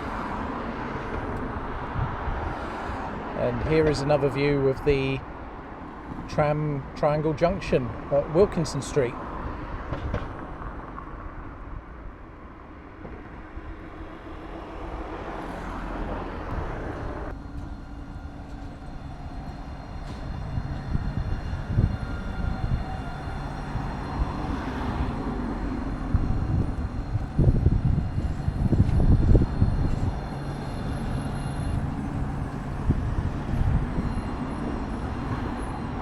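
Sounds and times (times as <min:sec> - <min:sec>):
tram rumbling on track: 0:00.0 - 0:36.0
high electric whine: 0:16.6 - 0:36.0.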